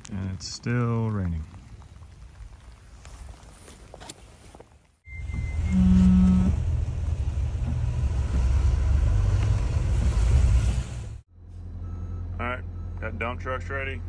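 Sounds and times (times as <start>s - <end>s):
diesel machinery rumbling: 5.0s - 14.0s.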